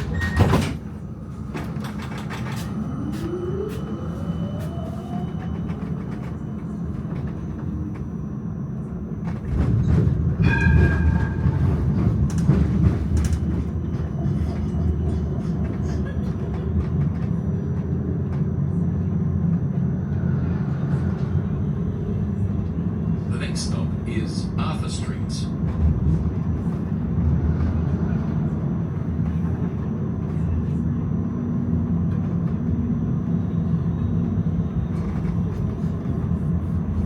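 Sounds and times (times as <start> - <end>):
wheel squealing on rail: 0.0 - 0.8, 10.0 - 14.7
tram rumbling on rails: 0.0 - 37.0.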